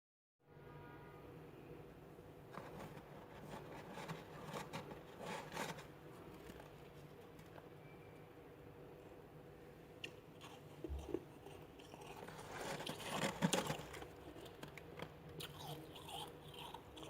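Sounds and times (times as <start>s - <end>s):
faint steady hum: 0.5s - 17.0s
freezer frost being scraped: 2.5s - 6.0s, 10.9s - 14.7s.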